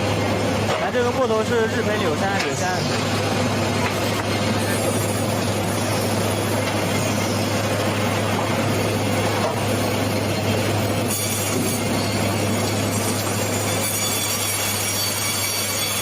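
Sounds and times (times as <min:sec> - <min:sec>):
steady low hum: 0:00.0 - 0:13.4
saw cutting a log: 0:10.9 - 0:16.0.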